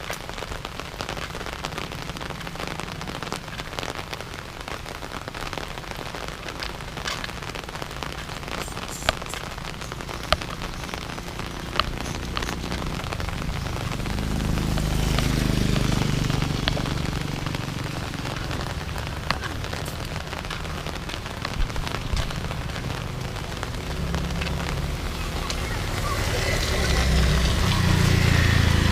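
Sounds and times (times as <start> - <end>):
drops ticking: 0.0 - 28.9
steady rain: 0.0 - 28.9.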